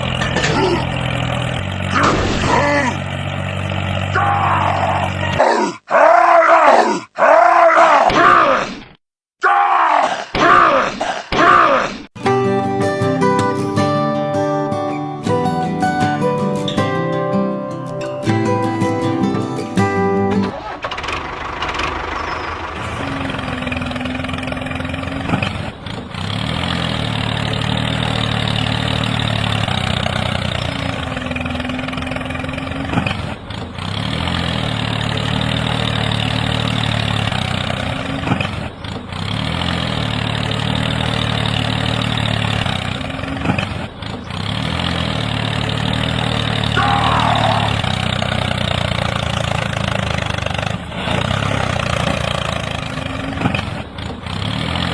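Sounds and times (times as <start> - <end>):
engine idling: 0.0 - 5.4, 19.9 - 54.9.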